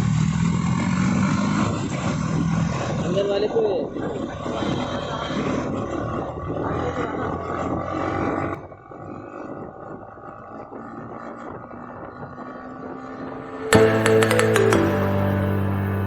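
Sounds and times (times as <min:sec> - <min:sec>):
motorcycle engine: 0:00.0 - 0:02.9.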